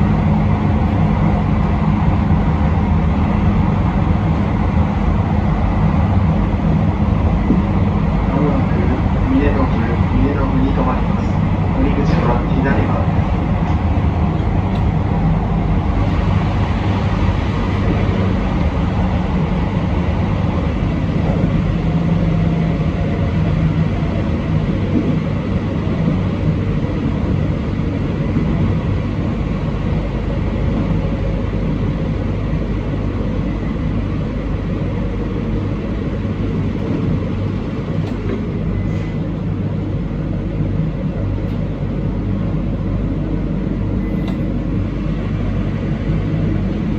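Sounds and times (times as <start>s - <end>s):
train wheels rumbling on rails: 0.0s - 46.9s
motor hum: 11.0s - 29.1s.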